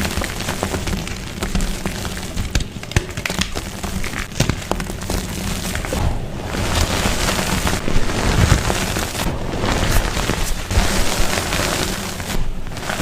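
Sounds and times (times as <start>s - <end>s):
chalk blocks crushed and crumbling: 0.0s - 12.2s
low thudding rumble: 5.8s - 11.6s.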